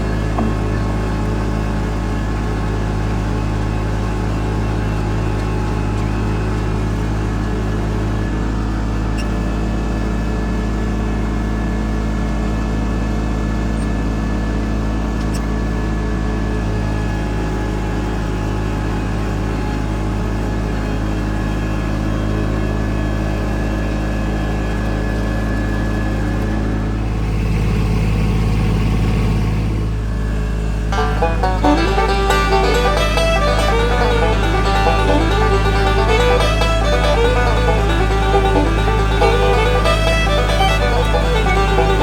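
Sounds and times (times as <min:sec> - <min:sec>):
tractor engine running: 0:00.0 - 0:42.0.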